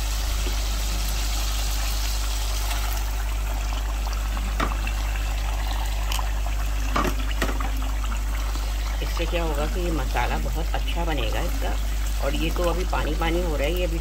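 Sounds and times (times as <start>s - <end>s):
chicken sizzling in hot oil: 0.0s - 14.0s
constant low hum: 0.0s - 14.0s.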